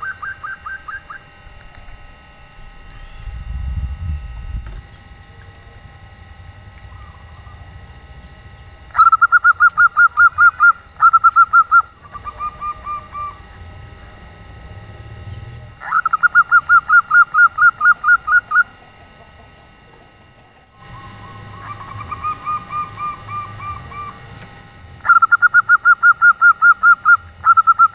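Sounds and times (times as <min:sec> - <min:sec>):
dove cooing: 0:00.0 - 0:02.0, 0:04.7 - 0:27.9.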